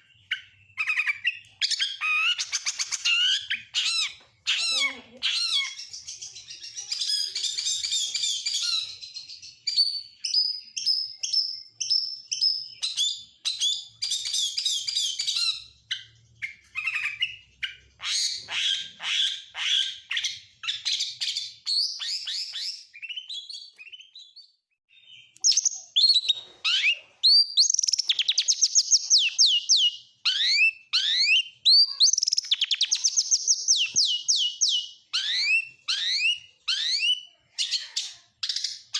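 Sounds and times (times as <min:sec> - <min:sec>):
songbird singing varied song: 0:00.0 - 0:19.1, 0:20.0 - 0:38.9.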